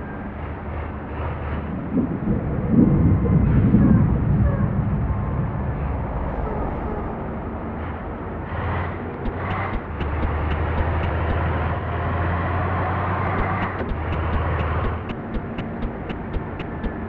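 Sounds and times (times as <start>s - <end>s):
faint rapid ticking: 9.2s - 11.5s, 13.3s - 17.0s
diesel bus engine humming: 9.2s - 17.0s.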